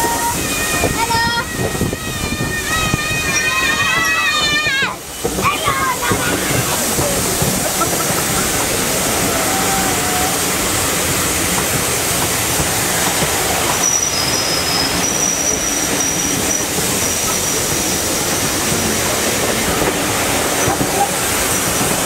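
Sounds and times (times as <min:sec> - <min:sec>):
high-pitched running gear squeals: 0:00.0 - 0:05.0, 0:13.7 - 0:17.8
train wheel and track noise: 0:00.0 - 0:22.0.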